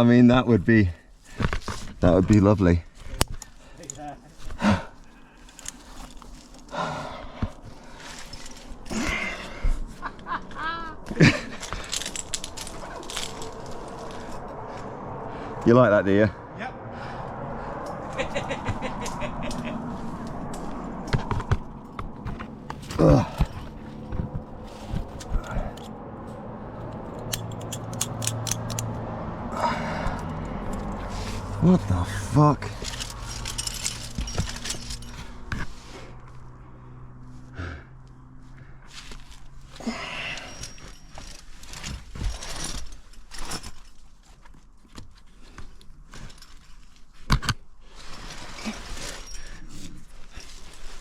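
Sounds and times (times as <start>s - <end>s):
metal climbing gear clinking: 1.2s - 14.6s, 20.5s - 29.0s, 29.6s - 35.8s, 38.9s - 51.0s
scraping and shuffling: 19.4s - 25.9s, 30.2s - 36.6s, 40.4s - 51.0s.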